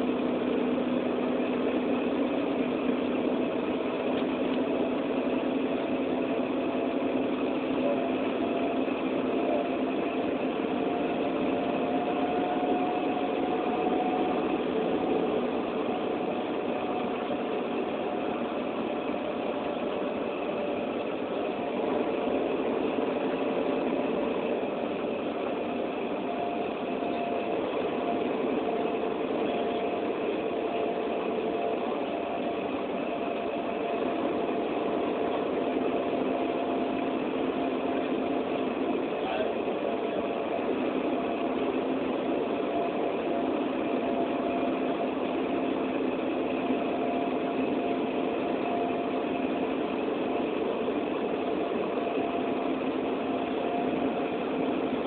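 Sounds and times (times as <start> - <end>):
engine humming: 0.0 - 55.0
held tones drifting in pitch: 3.2 - 39.6.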